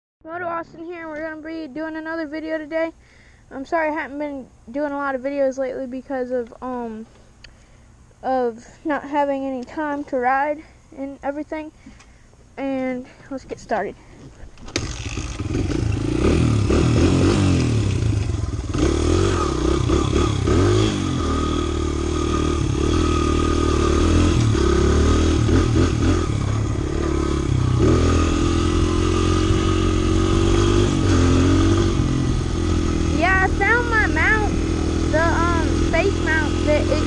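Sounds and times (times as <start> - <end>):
dirt bike engine revving: 14.7 - 37.0.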